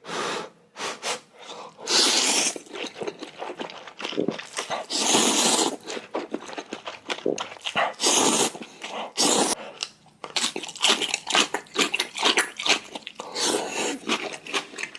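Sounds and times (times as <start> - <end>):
wet chewing and crunching: 1.6 - 14.9
noodles slurped: 1.8 - 9.6.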